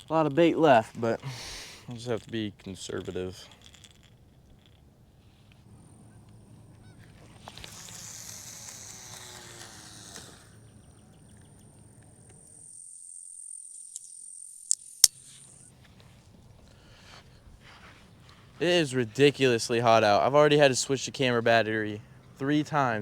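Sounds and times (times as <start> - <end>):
low steady hum: 0.0 - 13.4
high thin whine: 5.1 - 15.7
honking bird calls: 5.7 - 8.0.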